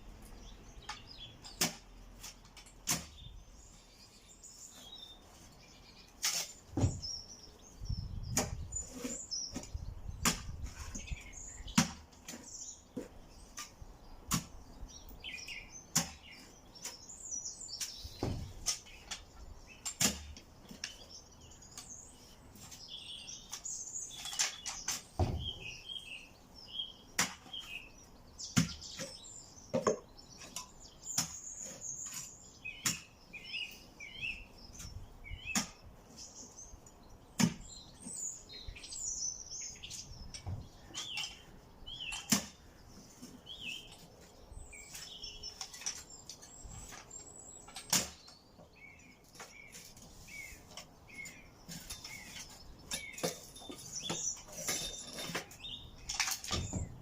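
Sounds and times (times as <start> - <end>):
small birds chirping: 0.0 - 57.0
timber knocks and clatters: 6.7 - 7.2, 17.9 - 19.3, 24.2 - 25.8, 28.6 - 30.6, 51.6 - 57.0.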